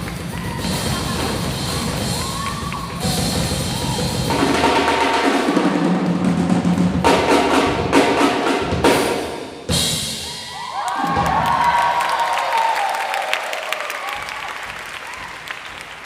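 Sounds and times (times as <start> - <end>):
jazz big band playing: 0.0 - 10.2
busy drums: 0.0 - 12.4, 13.6 - 16.0.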